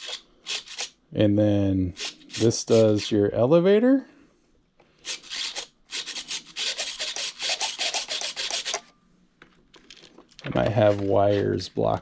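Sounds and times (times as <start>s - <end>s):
servos chattering with scratchy rasp: 5.1s - 8.9s.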